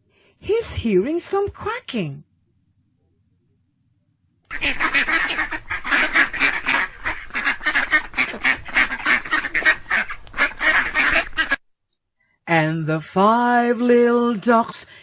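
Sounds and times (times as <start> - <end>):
ducks quacking: 4.5 - 11.6.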